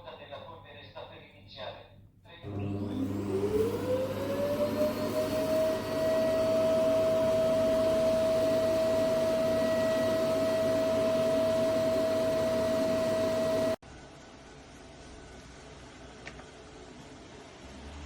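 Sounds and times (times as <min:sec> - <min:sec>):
robot vacuum motor whining: 0:02.5 - 0:13.8.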